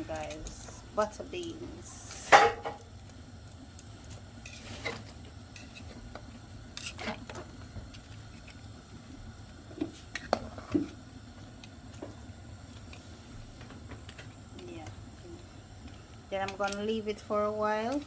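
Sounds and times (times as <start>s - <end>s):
pots and utensils clinking: 2.0s - 2.8s.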